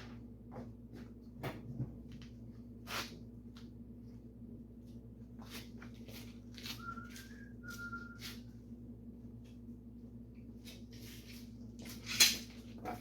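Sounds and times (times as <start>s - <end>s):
steady low hum: 0.0s - 13.0s
person whistling: 6.7s - 8.5s.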